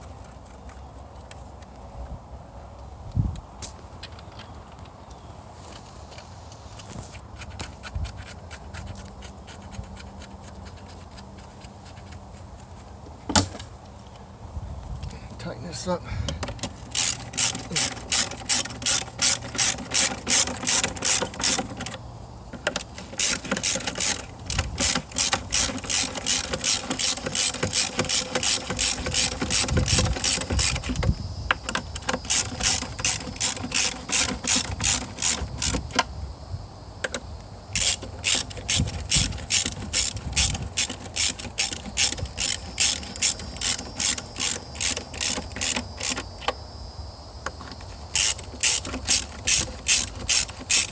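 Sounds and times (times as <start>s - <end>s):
ratchet wrench clicking: 16.4s - 22.0s, 22.6s - 36.1s, 37.8s - 46.6s, 47.6s - 50.9s.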